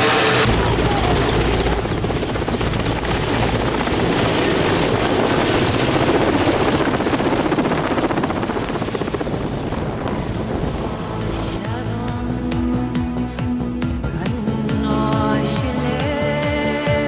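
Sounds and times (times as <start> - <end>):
aircraft engine pulsing: 0.0 - 12.7.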